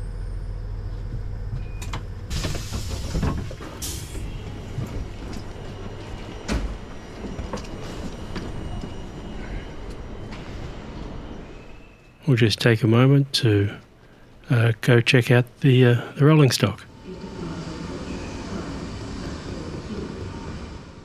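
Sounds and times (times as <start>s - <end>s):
train humming: 0.0s - 21.0s
knocks and clunks: 1.1s - 5.5s.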